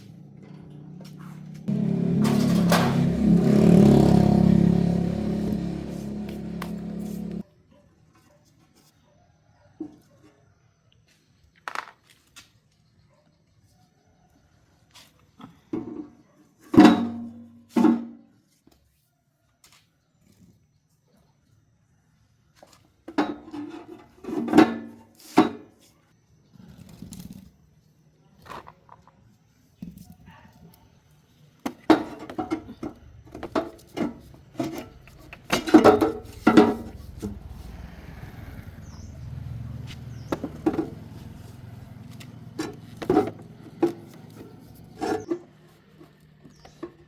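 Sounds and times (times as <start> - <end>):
tools and metal parts clanking: 0.4 - 4.0, 31.9 - 36.9, 42.5 - 47.0.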